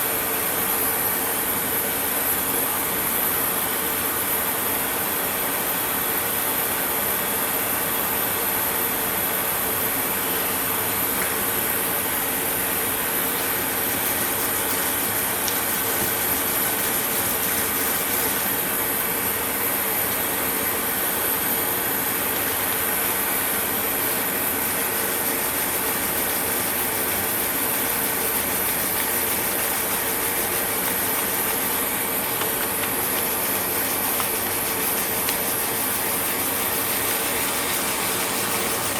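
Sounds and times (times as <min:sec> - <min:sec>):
sanding: 0:11.8 - 0:19.2, 0:22.9 - 0:38.9
motor hum: 0:24.8 - 0:38.9.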